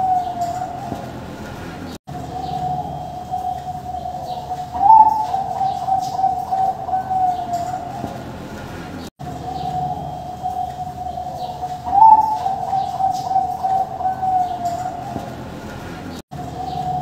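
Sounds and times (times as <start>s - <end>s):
doves cooing: 0.0s - 17.0s.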